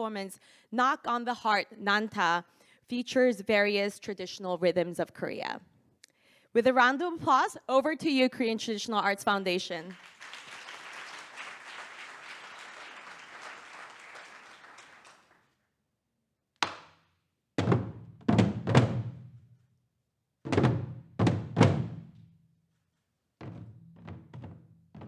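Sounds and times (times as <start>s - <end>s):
applause: 9.7s - 15.6s.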